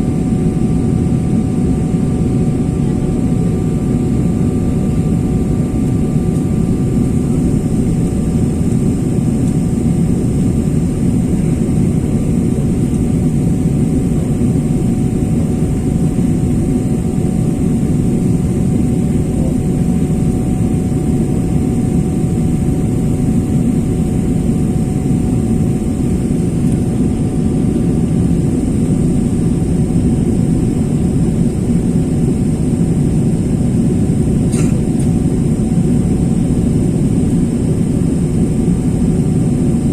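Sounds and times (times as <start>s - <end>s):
jet engines and airflow rumble: 0.0s - 39.9s.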